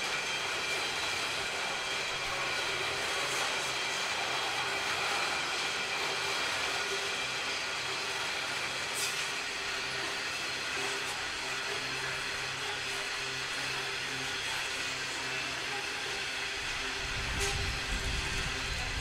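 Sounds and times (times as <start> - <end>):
train rolling past: 0.0 - 19.0.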